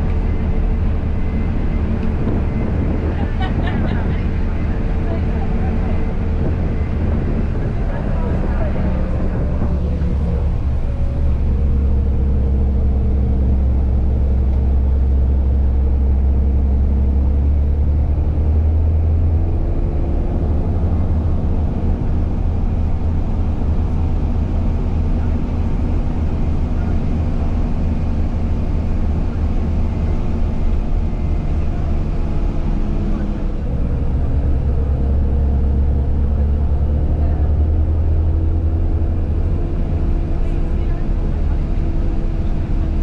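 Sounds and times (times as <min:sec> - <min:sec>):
vehicle engine droning: 0:00.0 - 0:43.0.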